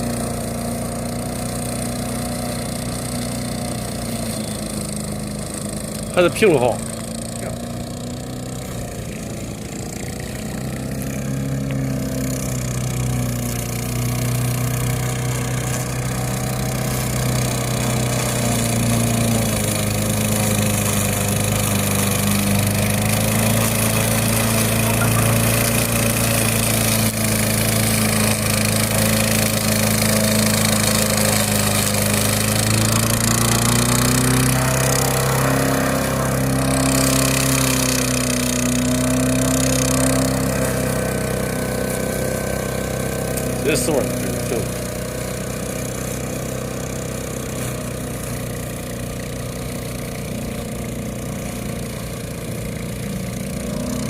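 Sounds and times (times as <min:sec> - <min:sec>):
lawn mower engine running: 0:00.0 - 0:54.0.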